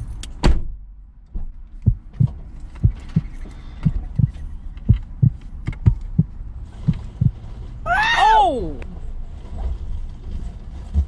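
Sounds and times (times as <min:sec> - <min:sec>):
heartbeat thumps: 0:01.8 - 0:07.5.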